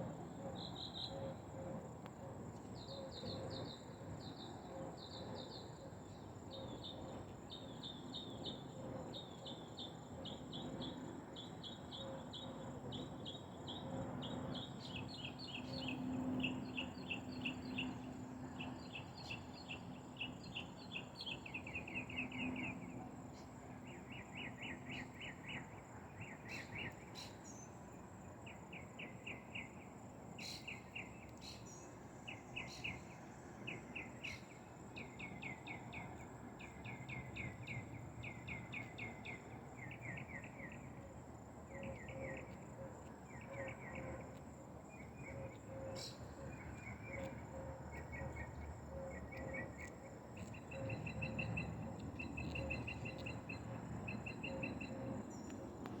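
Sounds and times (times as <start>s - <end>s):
insect chirping trills: 5.5s - 55.9s
soft pulsing chirp: 45.0s - 55.6s.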